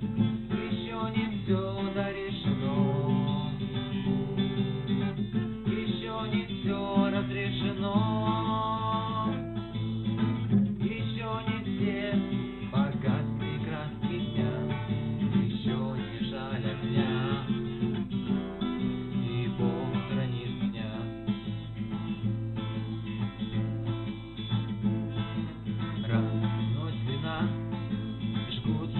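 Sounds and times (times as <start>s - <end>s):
acoustic guitar strummed: 0.0s - 28.9s.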